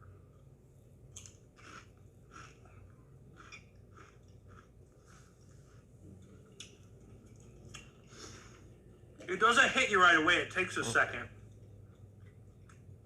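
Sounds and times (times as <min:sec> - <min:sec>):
person chewing crunchy chip: 0:01.2 - 0:05.9.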